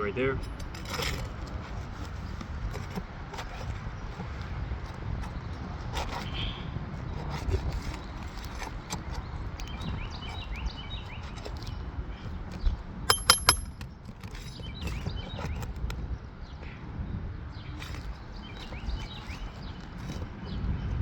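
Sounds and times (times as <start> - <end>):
hand tools scraping: 0.4 - 6.4, 13.1 - 14.7
sharp metal taps: 13.1 - 13.9.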